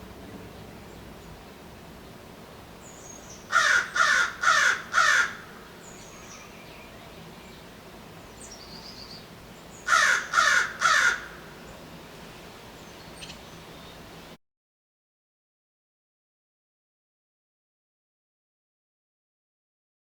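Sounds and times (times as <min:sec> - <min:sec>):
crow cawing: 0:03.5 - 0:05.8, 0:09.9 - 0:11.6.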